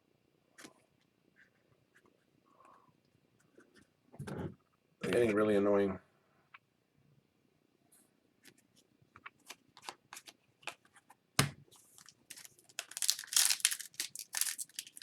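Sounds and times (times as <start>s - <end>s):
cards clicking and rustling: 12.0s - 15.0s
wrapper tearing and crinkling: 12.0s - 15.0s.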